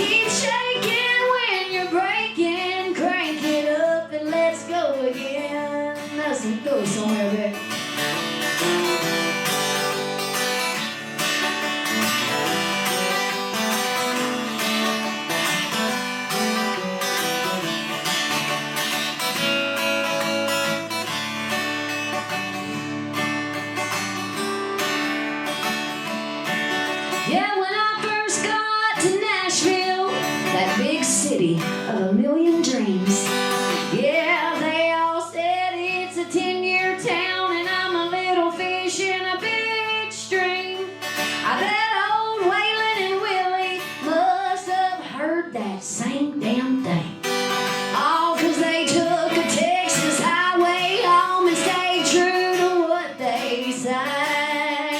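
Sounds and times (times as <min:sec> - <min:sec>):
woman singing: 0:00.0 - 0:07.9, 0:27.2 - 0:54.9
acoustic guitar playing: 0:00.0 - 0:54.9.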